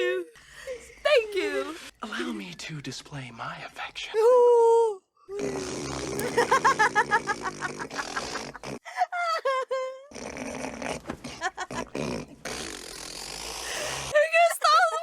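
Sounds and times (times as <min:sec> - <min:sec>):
pulsing laughter: 0:06.2 - 0:08.6.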